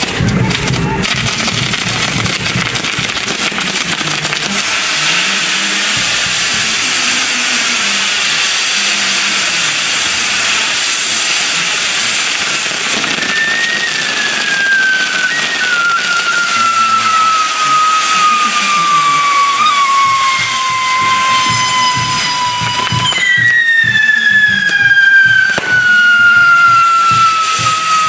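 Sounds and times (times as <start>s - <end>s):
fireworks hissing sparks: 0.0s - 28.0s
high thin whistle: 13.2s - 28.0s.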